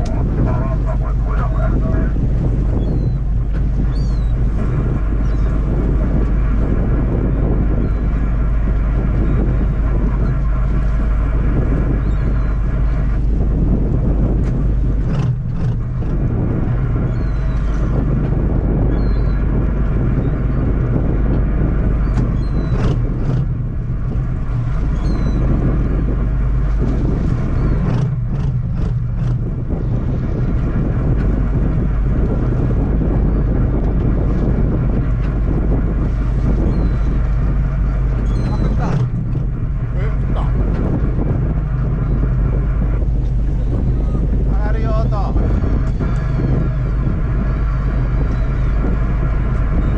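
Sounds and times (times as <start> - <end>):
boat engine droning: 0.0 - 49.9.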